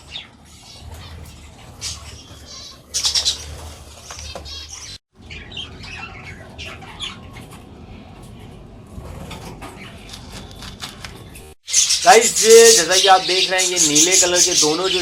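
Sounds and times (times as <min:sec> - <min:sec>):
budgerigars chirping and squawking: 0:00.0 - 0:07.6, 0:11.7 - 0:15.0.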